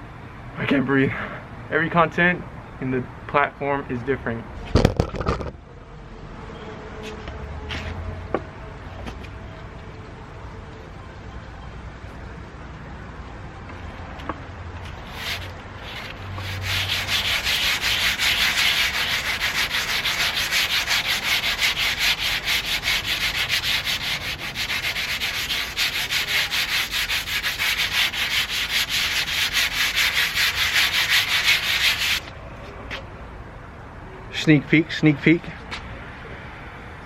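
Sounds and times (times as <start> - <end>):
sandpaper on painted metal: 14.9 - 32.3.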